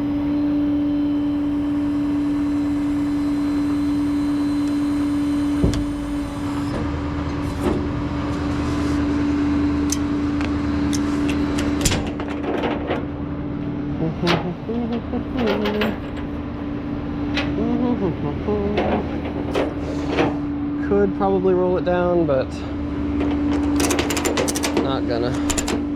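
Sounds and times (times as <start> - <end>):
hydraulic pump humming: 0.1 - 25.9
metal clanks and clicks: 10.9 - 13.1, 14.2 - 16.4, 18.7 - 20.4, 23.2 - 25.9.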